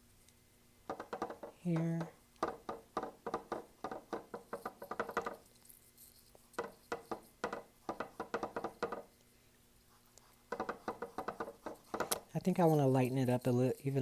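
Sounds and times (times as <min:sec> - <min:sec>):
paintbrush tapping on canvas: 0:00.9 - 0:09.2, 0:10.2 - 0:13.0.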